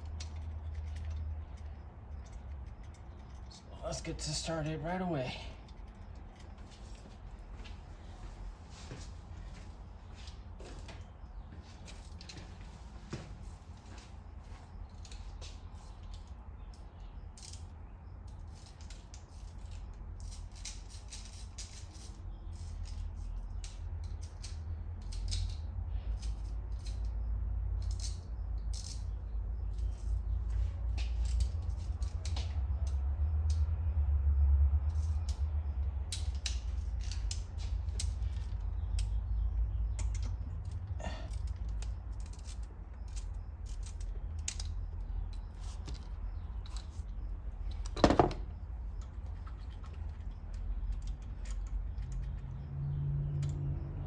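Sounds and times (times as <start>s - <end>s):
metal bolts clicking and clinking: 0.0s - 7.1s, 36.1s - 53.7s.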